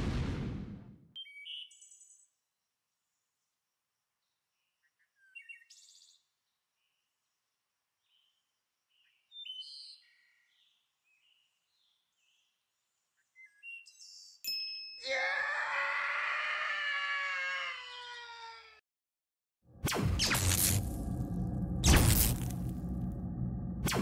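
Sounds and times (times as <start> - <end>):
faint birdsong: 1.2 - 14.5.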